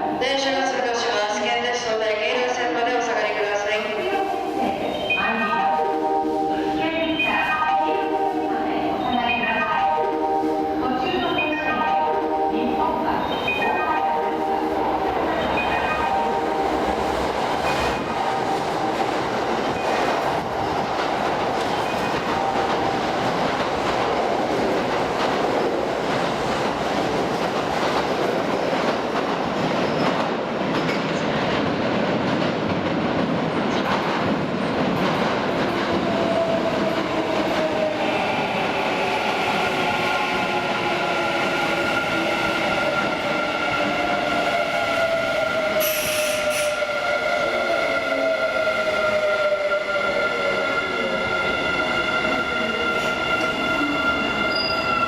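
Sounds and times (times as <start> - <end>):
train wheels rumbling on rail: 12.2 - 55.0.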